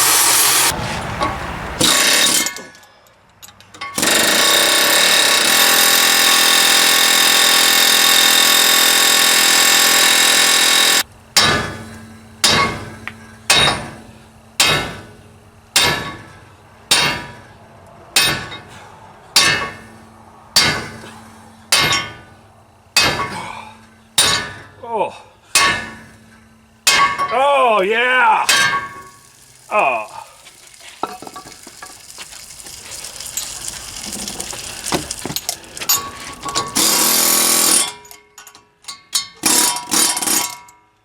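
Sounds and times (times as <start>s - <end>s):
air hammer running: 0.0s - 0.7s, 4.0s - 11.1s, 36.7s - 38.0s
hammer ringing on steel: 25.6s - 26.1s.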